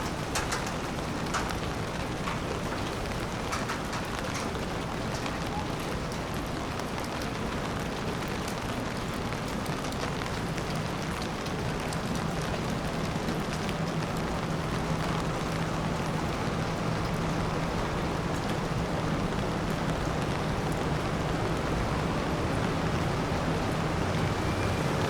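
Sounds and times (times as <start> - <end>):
drips ticking: 0.0 - 6.5
rain falling on street: 0.0 - 25.0.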